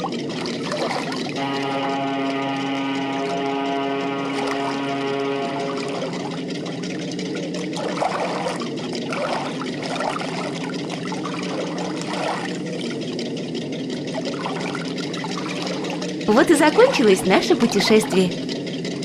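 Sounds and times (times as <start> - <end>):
water bubbling and gurgling: 0.0 - 16.3
rushing water: 0.4 - 6.9, 7.7 - 12.8.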